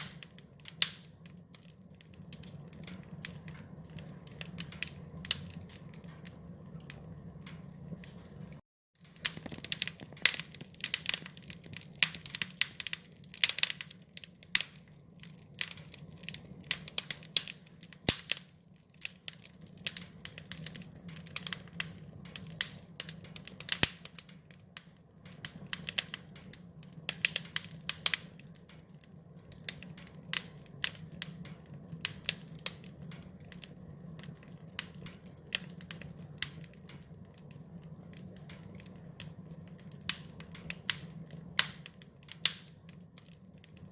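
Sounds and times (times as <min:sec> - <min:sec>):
wood fire crackling: 0:00.0 - 0:43.9
low steady rumble: 0:01.4 - 0:08.6.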